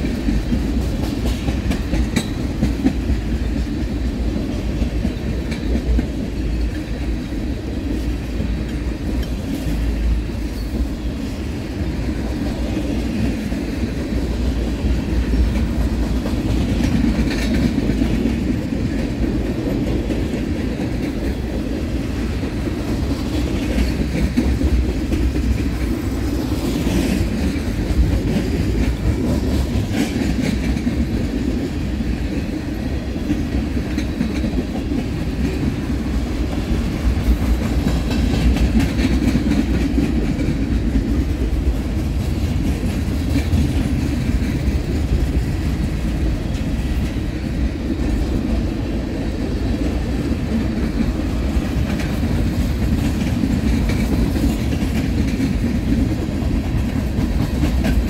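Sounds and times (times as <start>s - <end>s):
steel wheels rumbling on rail: 0.0s - 58.0s.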